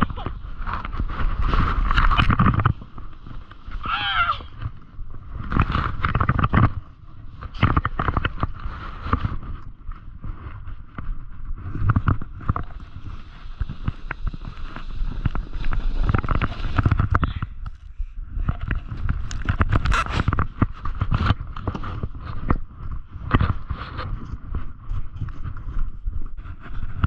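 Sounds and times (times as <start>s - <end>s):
board scraping over icy snow: 0.0s - 17.8s, 18.4s - 27.0s
wind buffeting microphone: 0.0s - 27.0s.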